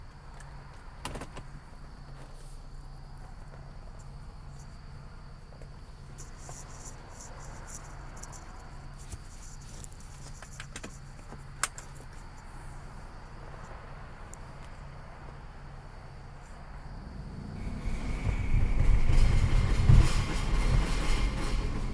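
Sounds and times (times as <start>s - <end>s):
pulsing low hum: 16.6s - 21.9s.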